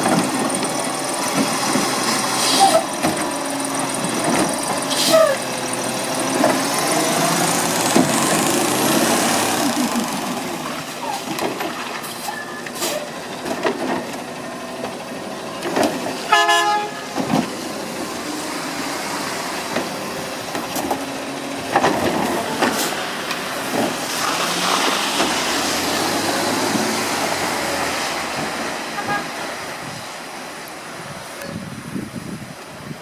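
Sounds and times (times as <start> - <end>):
garbage truck engine running: 0.0 - 32.9
knocks and clanks: 6.1 - 12.1, 17.1 - 17.6, 19.6 - 24.2
short horn toot: 16.3 - 17.1.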